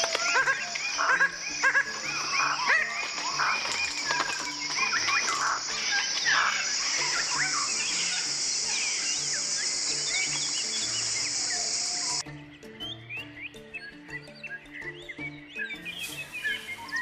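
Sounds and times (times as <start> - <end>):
insect buzz: 0.0 - 12.2
birds chirping and whistling: 0.0 - 17.0.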